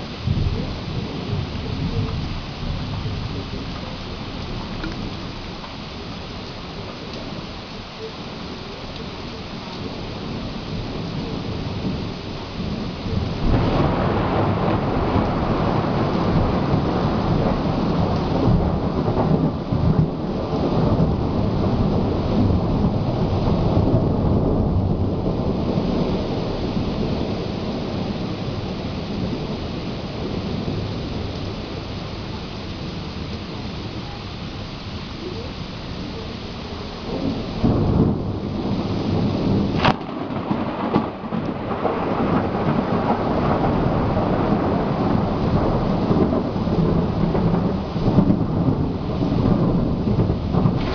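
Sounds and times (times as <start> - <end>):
steady rain: 0.0 - 50.9
thunder rumbling: 0.0 - 50.9
sharp thunder crack: 9.9 - 31.8, 37.0 - 50.9.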